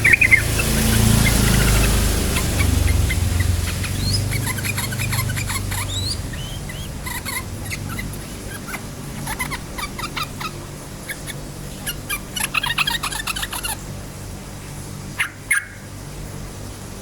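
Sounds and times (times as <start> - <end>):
low rumble: 0.0 - 11.8
bird chattering and whistling: 0.0 - 13.8, 15.2 - 15.9.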